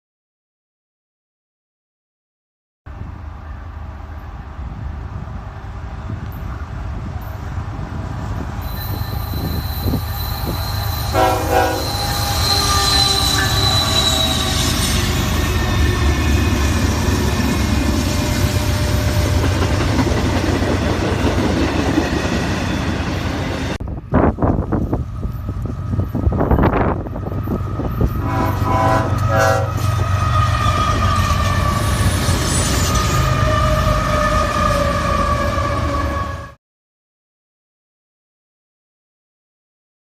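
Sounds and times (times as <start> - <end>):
freight train rumbling: 2.9 - 36.6
high wheel squeal: 8.6 - 16.6
train horn blast: 9.4 - 14.7, 28.1 - 31.9.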